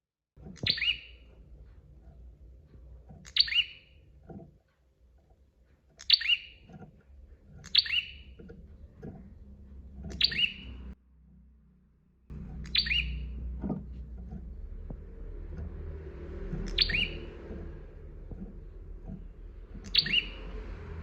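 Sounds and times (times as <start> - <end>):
low background rumble: 0.4 - 21.0
bird chirps sweeping down: 0.6 - 1.2, 3.3 - 3.9, 6.0 - 6.6, 7.6 - 8.3, 10.1 - 10.8, 12.6 - 13.4, 16.5 - 17.6, 19.8 - 20.6.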